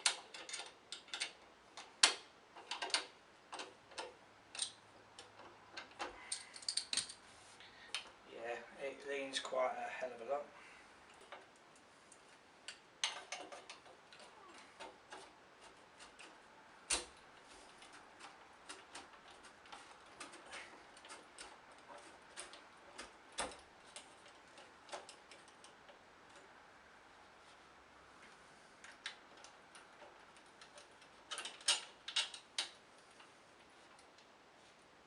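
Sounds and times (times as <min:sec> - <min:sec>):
hard objects clicking and knocking: 0:00.0 - 0:07.2, 0:11.1 - 0:26.5, 0:28.8 - 0:33.3.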